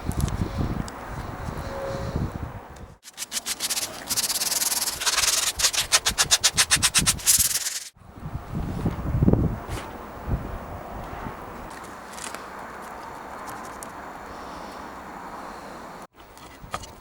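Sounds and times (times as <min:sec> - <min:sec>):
hand sanding strokes: 0:03.0 - 0:07.9.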